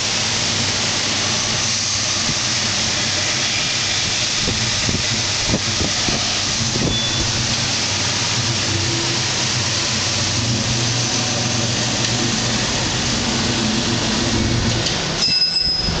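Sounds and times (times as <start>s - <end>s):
car engine running on dyno: 4.4s - 15.2s.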